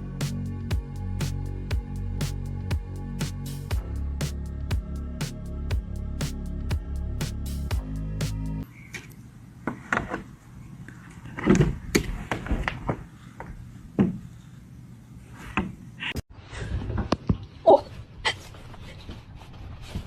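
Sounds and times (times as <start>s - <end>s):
music: 0.0s - 8.6s.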